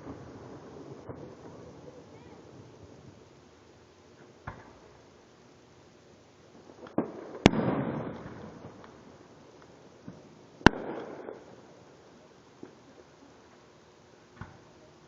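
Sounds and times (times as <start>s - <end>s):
fireworks bangs: 0.0s - 3.3s, 4.2s - 5.1s, 6.6s - 13.6s.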